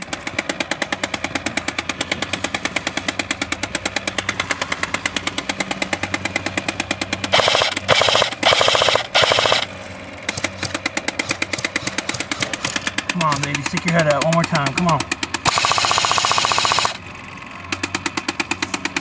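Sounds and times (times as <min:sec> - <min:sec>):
airsoft guns firing full auto: 0:07.3 - 0:17.1.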